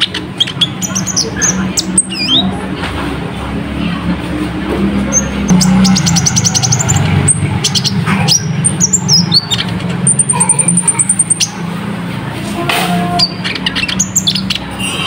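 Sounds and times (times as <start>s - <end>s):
steady low hum: 1.2s - 12.5s.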